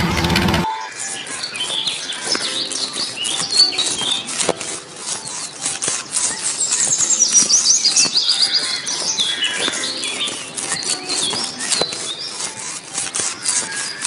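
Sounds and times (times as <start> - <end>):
sharp clicks: 0.0 - 14.0
high-pitched chirping and squeaking: 0.6 - 14.0.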